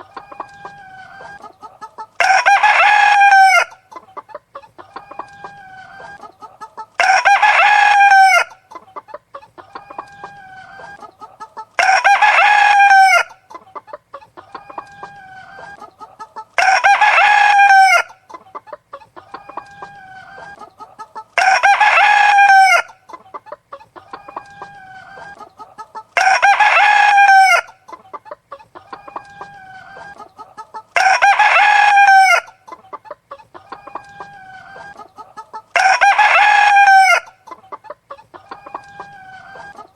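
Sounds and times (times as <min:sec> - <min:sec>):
hen clucking: 0:00.0 - 0:39.9
rooster crowing: 0:02.2 - 0:03.8, 0:07.0 - 0:08.6, 0:11.8 - 0:13.4, 0:16.6 - 0:18.2, 0:21.4 - 0:22.9, 0:26.2 - 0:27.7, 0:31.0 - 0:32.6, 0:35.7 - 0:37.4.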